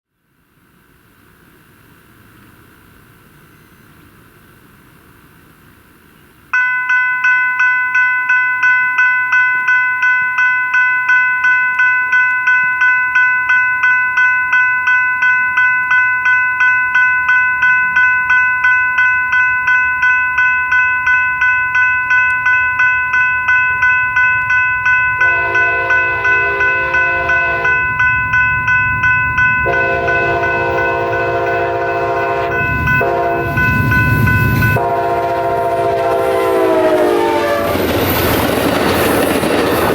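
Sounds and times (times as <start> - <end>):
crossing bell ringing: 6.5 - 39.9
train rumbling past: 21.3 - 39.9
train horn blasts: 25.2 - 28.0, 29.6 - 38.0.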